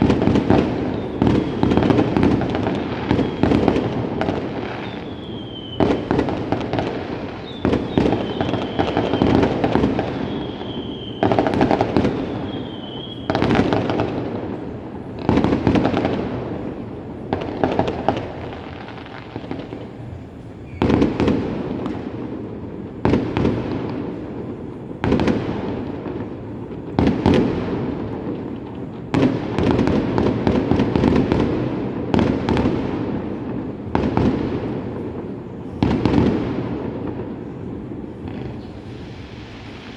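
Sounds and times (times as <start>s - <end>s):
high firework whistles: 0.0s - 14.1s, 15.4s - 22.0s, 38.1s - 39.9s
fireworks banging: 0.0s - 39.9s
fireworks crackling: 0.0s - 39.9s.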